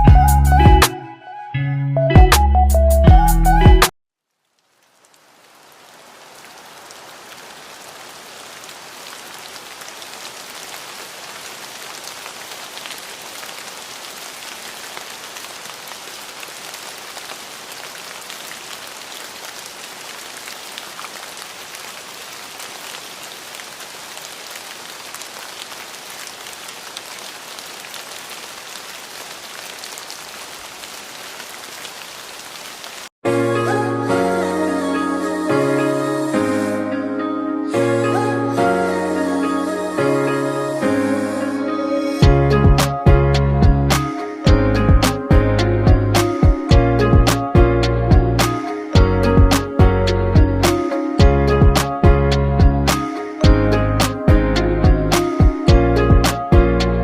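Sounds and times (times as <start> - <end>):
pattering rain drops: 4.2 - 33.1
steady rain hiss: 4.2 - 33.1, 38.1 - 57.0.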